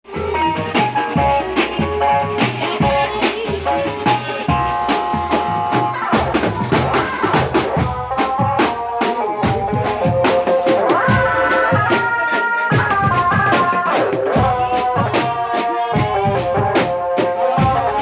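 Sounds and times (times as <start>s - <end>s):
electronic keyboard melody: 0.0s - 7.0s
drum kit beat: 0.0s - 18.0s.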